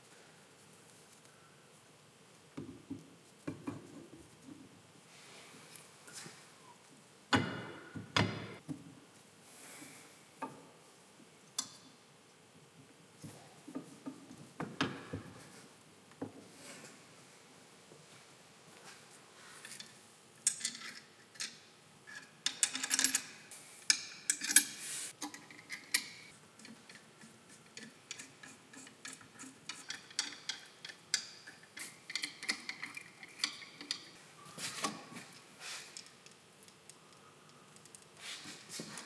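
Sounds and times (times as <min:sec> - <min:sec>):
metallic clicks of hand tools: 0:27.8 - 0:34.1.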